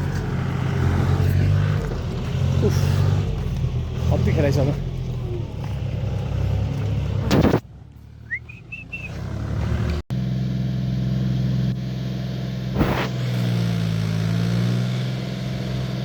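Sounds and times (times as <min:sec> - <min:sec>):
tractor engine running: 0:00.0 - 0:16.0
high whistle-like chirps: 0:08.2 - 0:09.2.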